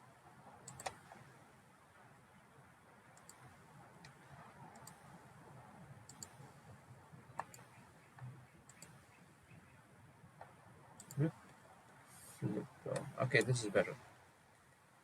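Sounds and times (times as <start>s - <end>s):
computer mouse clicking: 0.6s - 1.1s, 3.2s - 5.1s, 6.1s - 6.5s, 7.4s - 9.1s, 11.0s - 11.3s.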